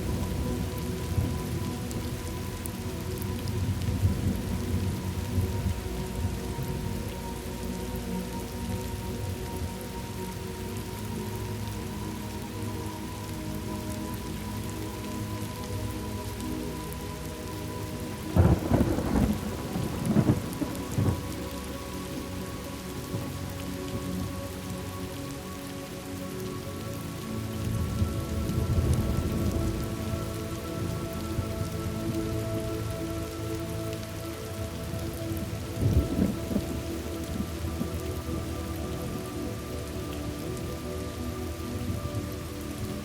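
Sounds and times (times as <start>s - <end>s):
steady rain falling: 0.0s - 43.0s
rolling thunder rumble: 18.4s - 21.3s, 28.4s - 30.4s, 35.4s - 37.6s.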